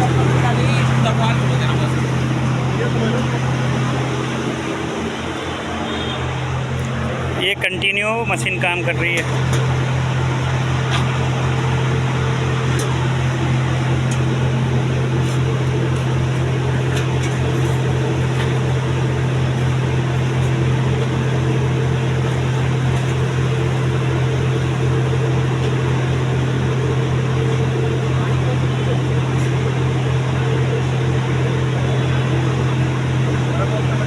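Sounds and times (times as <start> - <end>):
suction machine droning: 0.0 - 34.0.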